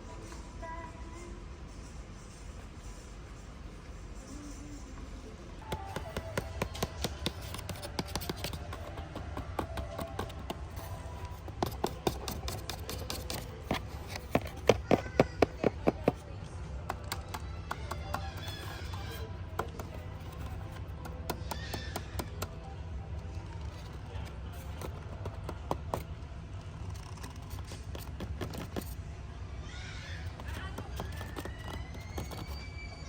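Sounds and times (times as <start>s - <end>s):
plastic toys clicking and tapping: 5.6s - 26.2s, 26.8s - 29.0s, 30.1s - 32.8s
music: 5.6s - 27.8s.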